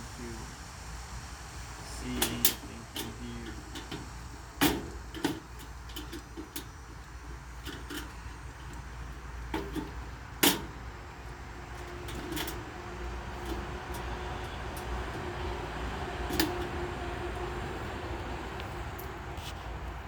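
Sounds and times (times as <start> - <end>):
steady low hum: 0.0 - 20.0
knocks and clatters: 9.5 - 10.8.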